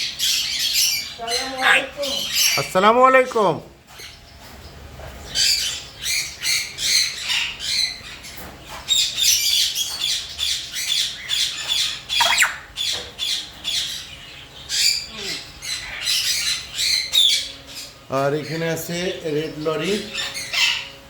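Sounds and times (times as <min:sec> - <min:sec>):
parrots squawking: 0:00.0 - 0:02.8, 0:08.9 - 0:17.9, 0:19.8 - 0:21.0
parrot shrieks: 0:12.1 - 0:12.8.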